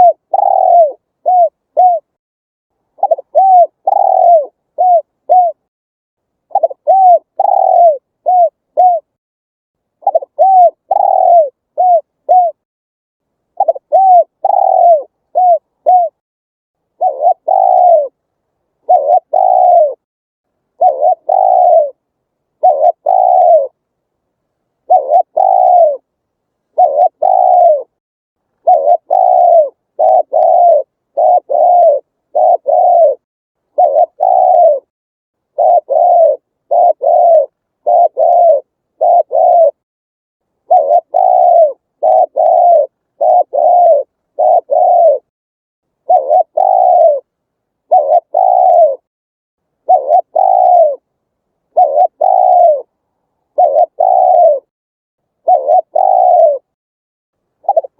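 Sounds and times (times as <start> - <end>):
dove cooing: 0.0 - 2.2, 2.9 - 5.7, 6.5 - 9.2, 10.0 - 12.6, 13.5 - 16.2, 16.9 - 18.2, 18.8 - 20.0, 20.7 - 23.8, 24.8 - 26.1, 26.7 - 28.0, 28.6 - 34.9, 35.5 - 39.8, 40.6 - 45.3, 46.0 - 49.1, 49.8 - 51.1, 51.7 - 54.7, 55.4 - 56.8, 57.6 - 57.9.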